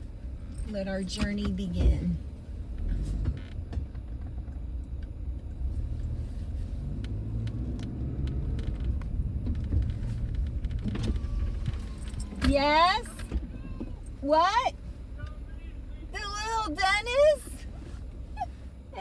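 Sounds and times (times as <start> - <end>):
car engine rumbling: 0.0 - 19.0.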